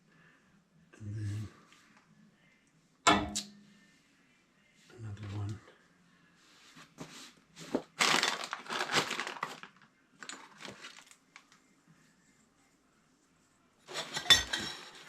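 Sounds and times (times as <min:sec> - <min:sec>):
plastic crinkling: 0:07.7 - 0:11.6.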